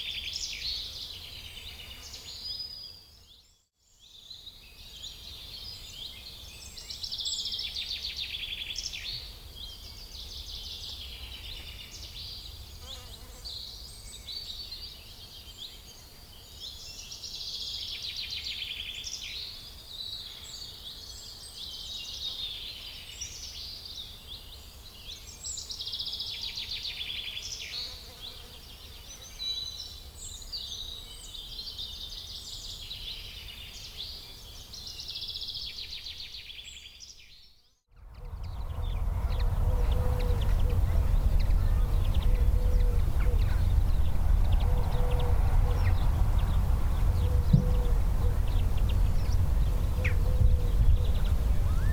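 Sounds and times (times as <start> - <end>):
songbirds chirping and trilling: 0.0 - 51.9
low rumble: 38.0 - 51.9.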